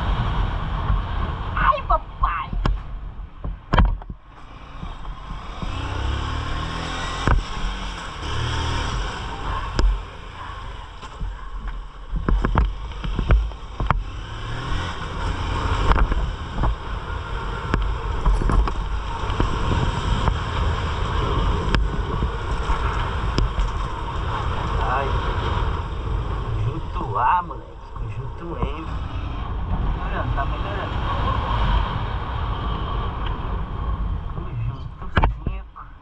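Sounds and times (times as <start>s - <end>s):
wind noise on microphone: 0.0s - 26.8s
motorcycle engine running: 2.6s - 35.9s.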